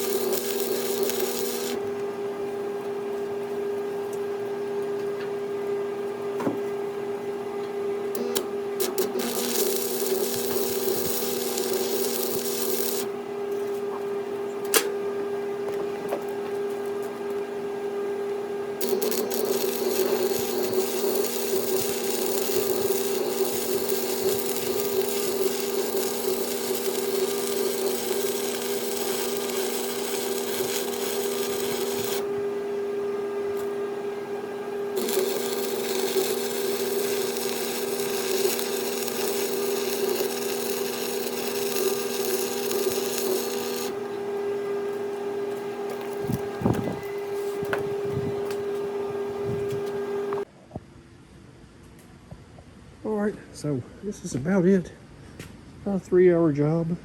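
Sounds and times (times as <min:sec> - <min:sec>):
grinding hiss on steel: 0:00.0 - 0:01.8, 0:08.2 - 0:13.1, 0:18.8 - 0:32.2, 0:35.0 - 0:44.0
power grinder motor running: 0:00.0 - 0:01.8, 0:08.2 - 0:13.1, 0:18.8 - 0:32.3, 0:34.9 - 0:44.1.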